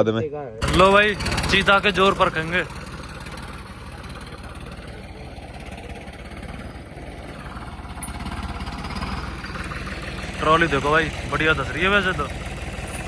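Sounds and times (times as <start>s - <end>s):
tractor diesel engine running: 0.6s - 13.0s.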